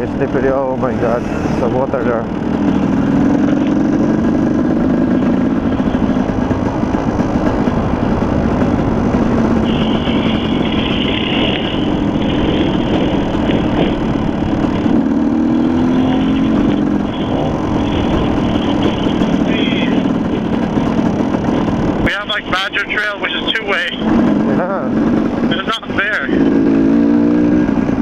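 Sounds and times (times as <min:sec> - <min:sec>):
dirt bike engine revving: 0:00.0 - 0:28.0
high squeal: 0:09.6 - 0:12.0.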